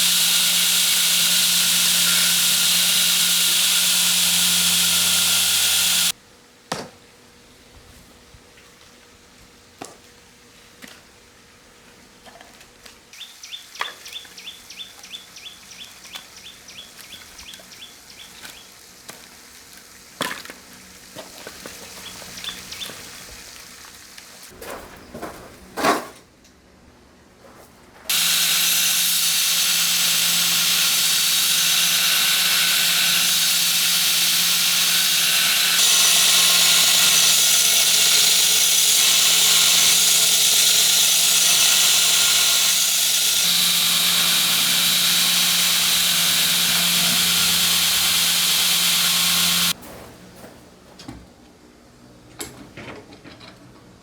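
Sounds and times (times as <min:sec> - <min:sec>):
workshop machine hissing and humming: 0:00.0 - 0:06.2, 0:28.1 - 0:49.8.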